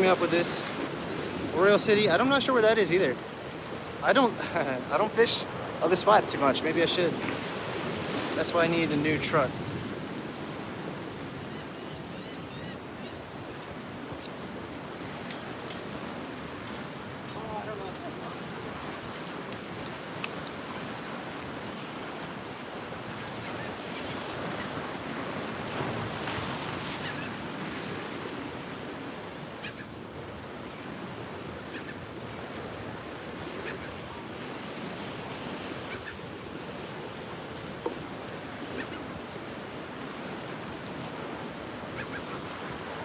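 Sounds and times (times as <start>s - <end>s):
ocean surf washing in: 0.0s - 11.8s.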